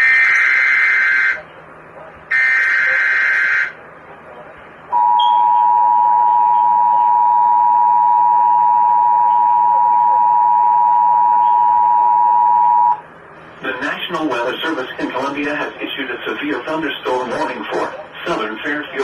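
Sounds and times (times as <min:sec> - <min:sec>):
two-tone alert signal: 0:05.0 - 0:13.0.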